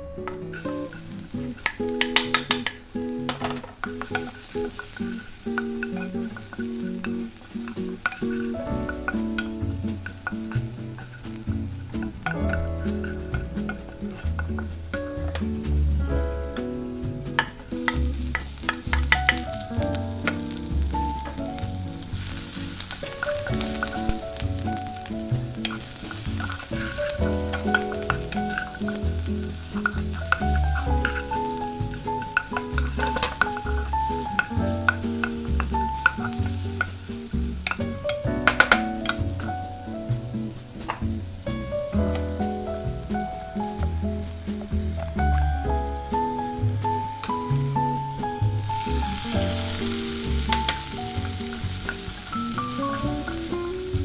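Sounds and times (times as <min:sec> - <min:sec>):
garlic sizzling in oil: 0:00.5 - 0:54.0
wooden spatula clicks and scrapes: 0:01.6 - 0:14.8, 0:25.4 - 0:37.0.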